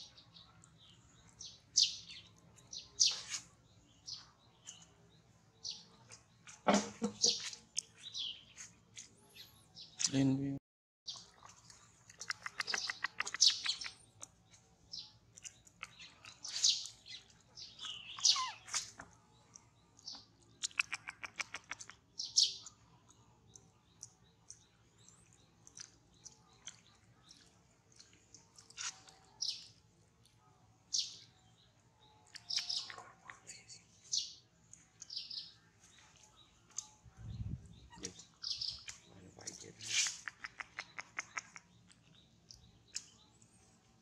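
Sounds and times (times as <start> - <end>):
birds chirping: 0.0 - 44.0
bird trills: 17.8 - 18.9.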